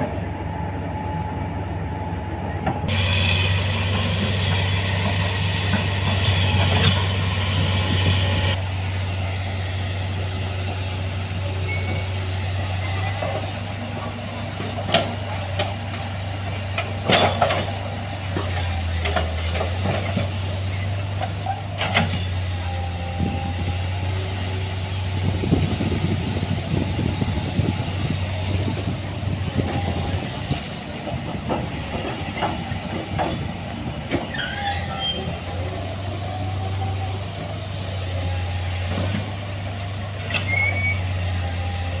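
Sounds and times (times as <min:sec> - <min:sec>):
excavator diesel engine running: 0:00.0 - 0:42.0
brief high squeals: 0:11.6 - 0:12.1, 0:34.3 - 0:35.4, 0:40.3 - 0:41.2
metallic clanks and knocks: 0:16.8 - 0:17.8.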